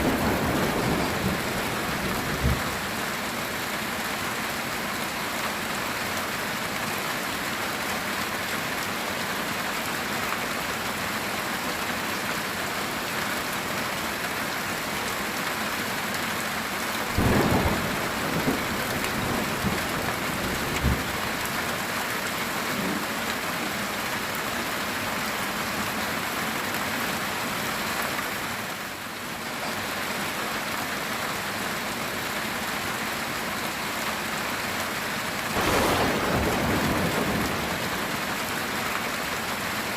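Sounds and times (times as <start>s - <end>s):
thunder rumbling: 0.0s - 3.0s, 17.2s - 21.8s, 35.6s - 38.4s
heavy rain on a tin roof: 0.0s - 39.9s.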